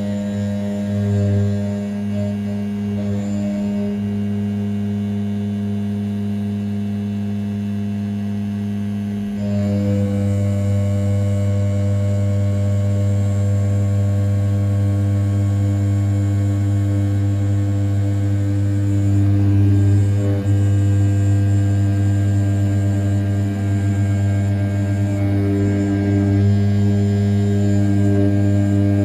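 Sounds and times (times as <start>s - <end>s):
milling machine cutting aluminium: 9.4s - 29.0s.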